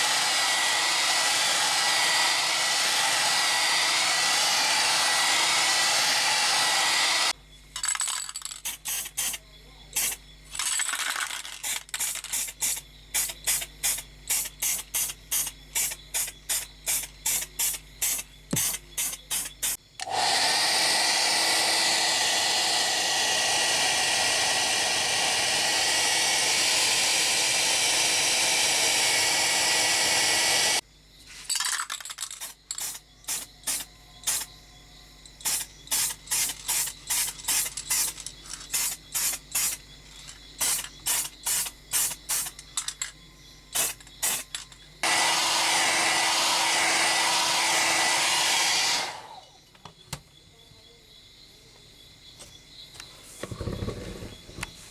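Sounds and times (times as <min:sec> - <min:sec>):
spray paint hissing: 0:08.6 - 0:10.2, 0:11.6 - 0:19.8, 0:32.4 - 0:34.5, 0:35.4 - 0:39.8, 0:40.6 - 0:42.7, 0:43.7 - 0:45.6.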